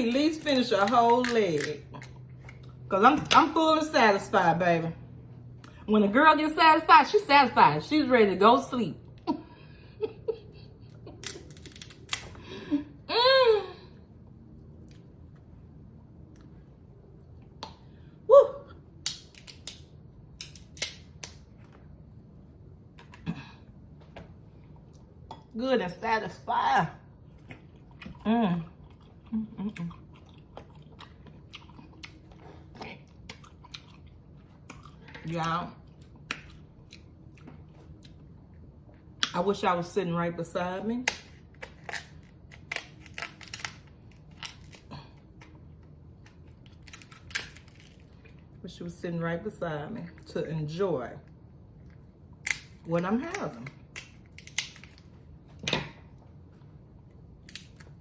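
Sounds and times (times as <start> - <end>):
crunch while eating: 11.0 - 12.4, 27.2 - 35.1, 41.2 - 48.6
crab legs cracking: 41.1 - 45.5, 46.2 - 48.2, 52.4 - 55.0
crab shell crackling: 41.8 - 44.8.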